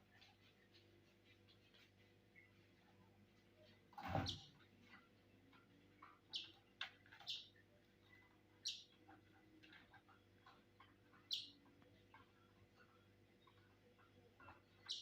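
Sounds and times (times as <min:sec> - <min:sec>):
lovebird chirping: 0:07.2 - 0:08.9, 0:11.2 - 0:11.6, 0:14.7 - 0:15.0.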